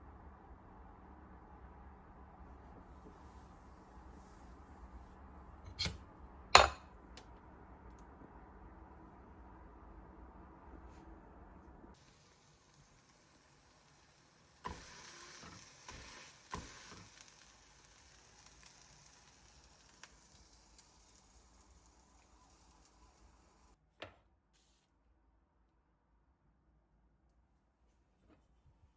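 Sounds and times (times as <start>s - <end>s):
faint hiss: 12.0s - 23.8s.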